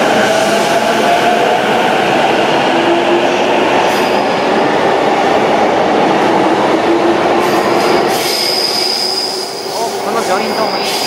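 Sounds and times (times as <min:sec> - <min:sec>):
train cars rumbling: 0:00.0 - 0:11.0.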